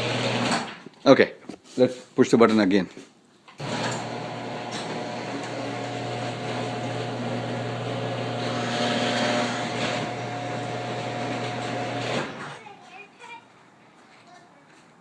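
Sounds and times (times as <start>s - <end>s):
garage door opener motor running: 0.0s - 0.7s, 3.6s - 12.6s.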